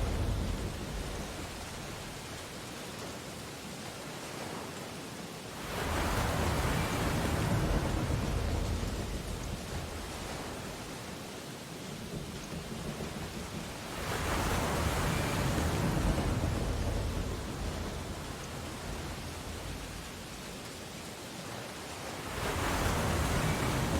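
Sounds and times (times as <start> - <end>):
ocean waves breaking: 0.0 - 23.9.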